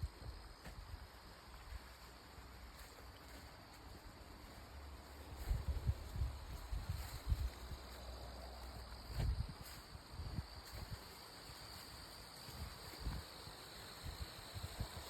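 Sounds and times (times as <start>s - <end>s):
insects trilling: 0.0s - 15.0s
soft low thumps: 8.7s - 11.0s.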